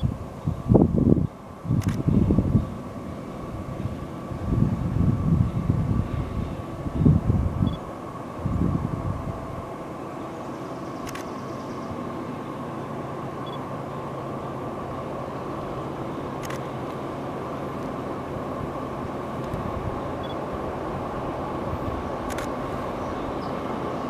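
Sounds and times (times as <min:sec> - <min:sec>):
distant diesel locomotive rumble: 0:00.0 - 0:24.0.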